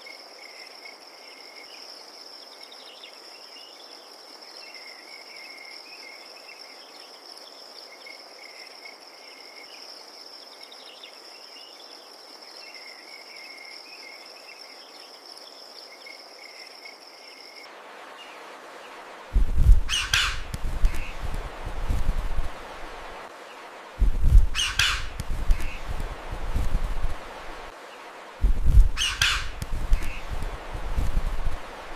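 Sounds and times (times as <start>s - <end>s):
crickets trilling: 19.4s - 23.3s, 24.0s - 27.7s, 28.4s - 31.9s
lower chirping: 19.6s - 22.5s, 24.1s - 27.4s, 28.6s - 31.6s
harsh bird call: 19.8s - 21.2s, 24.5s - 25.9s, 29.0s - 30.3s.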